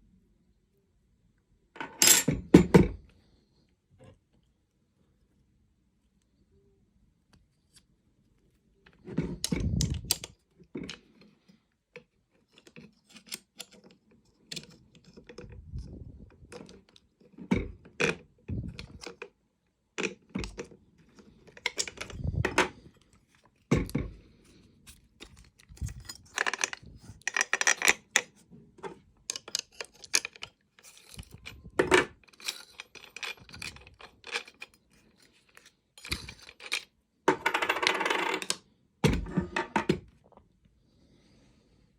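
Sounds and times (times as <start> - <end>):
small metal parts clinking: 21.5 - 22.9, 24.9 - 28.3, 29.3 - 38.6.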